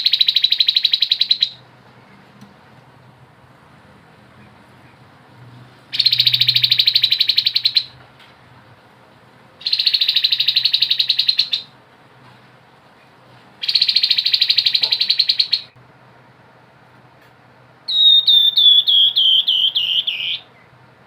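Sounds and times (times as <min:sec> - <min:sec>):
bird singing rattling trills: 0:00.0 - 0:01.6, 0:05.9 - 0:08.0, 0:09.6 - 0:11.7, 0:13.6 - 0:15.8, 0:17.9 - 0:20.7.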